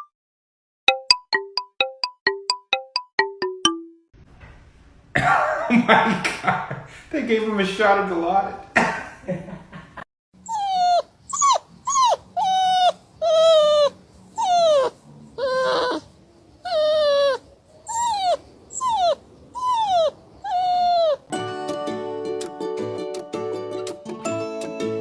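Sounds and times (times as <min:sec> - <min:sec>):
dog whining: 0:10.4 - 0:21.4.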